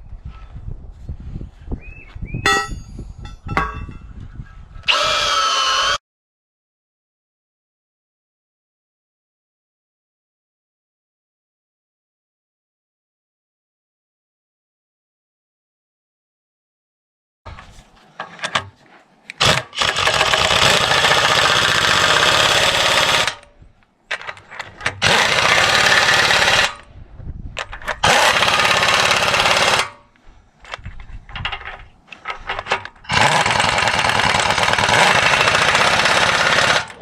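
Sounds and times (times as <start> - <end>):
metal clanks: 2.5 - 4.1
impact wrench running: 19.4 - 23.5, 24.9 - 26.8, 28.0 - 30.0, 33.1 - 37.0.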